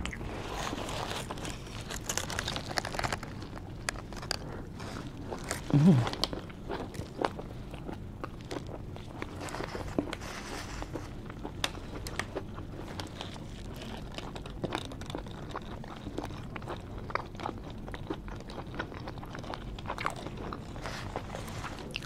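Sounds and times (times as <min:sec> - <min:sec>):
chewing with wet mouth clicks: 0:10.8 - 0:22.0.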